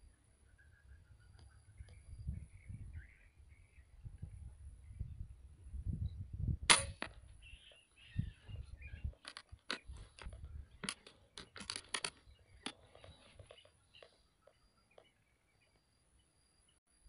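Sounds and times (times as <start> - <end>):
rifle shot: 6.7 - 7.2.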